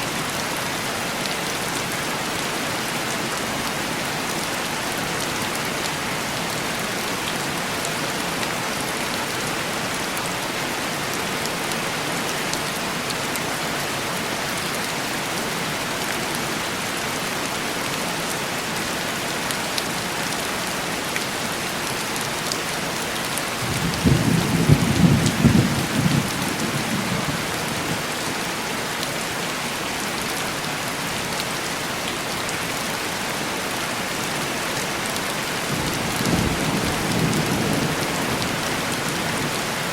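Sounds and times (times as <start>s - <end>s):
heavy rain tapping on a window: 19.4s - 33.2s, 33.9s - 39.9s
low rumble of thunder: 23.6s - 27.6s, 35.7s - 39.1s.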